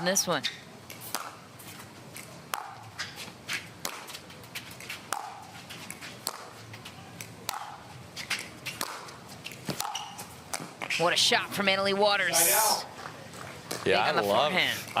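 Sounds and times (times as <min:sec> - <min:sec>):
paddles hitting plastic ball: 0:03.8 - 0:06.5, 0:07.2 - 0:10.9.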